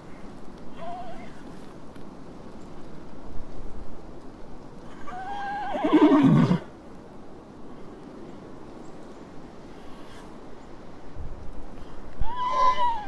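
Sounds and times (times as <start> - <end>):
horse neighing: 5.0 - 6.6, 12.2 - 13.0.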